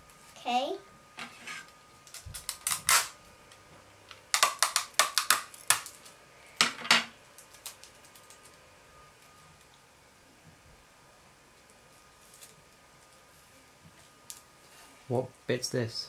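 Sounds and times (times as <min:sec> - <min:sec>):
sticky tape ripping from roll: 0:02.1 - 0:03.2.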